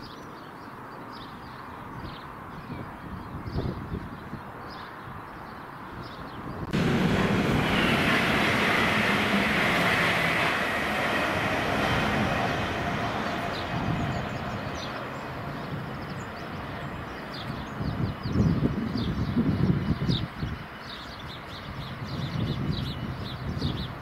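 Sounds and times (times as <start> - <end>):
train rushing past: 6.6 - 20.9.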